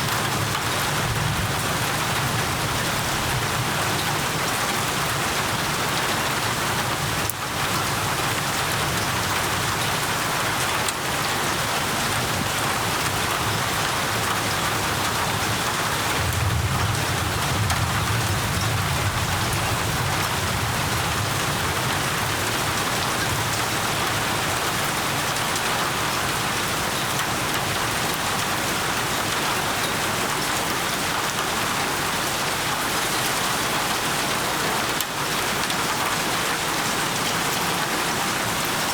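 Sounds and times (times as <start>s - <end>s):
heavy rain falling: 0.0s - 38.9s
distant thunder rumble: 16.1s - 24.2s.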